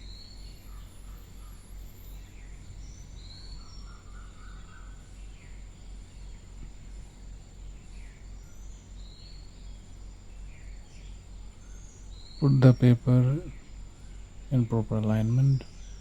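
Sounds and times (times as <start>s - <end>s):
low background hum: 0.0s - 16.0s
thin high whine: 14.5s - 16.0s.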